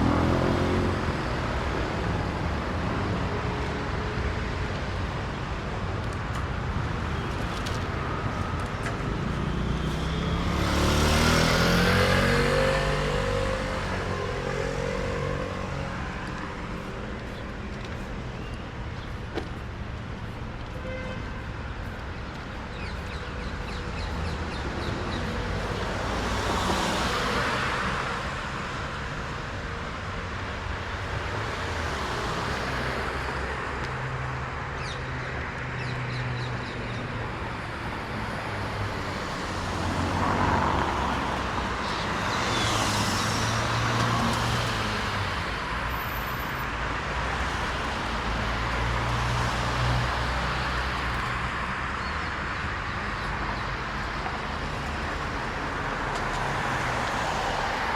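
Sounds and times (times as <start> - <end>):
hum of engines: 0.0 - 57.9
cars passing with tyre hiss: 7.6 - 18.3, 38.0 - 52.8.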